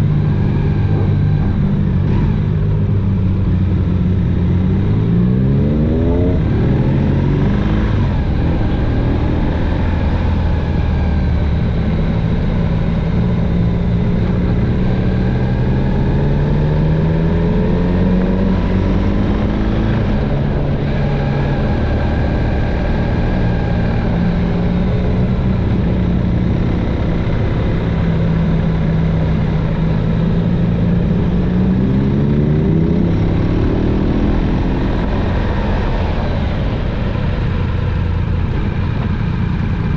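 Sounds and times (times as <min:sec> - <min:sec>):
motorcycle engine revving: 0:00.0 - 0:39.9
wind rumble on microphone: 0:00.0 - 0:39.9.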